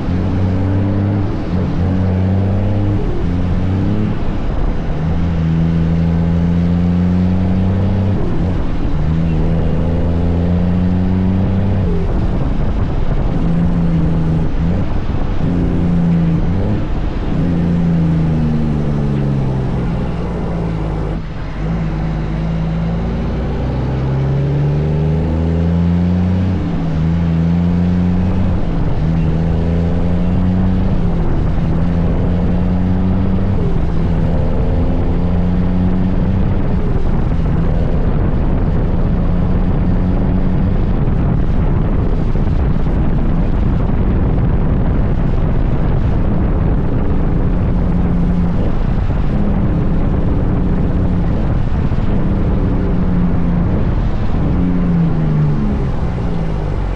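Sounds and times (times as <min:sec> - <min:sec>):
truck diesel engine running: 0:11.2 - 0:25.2.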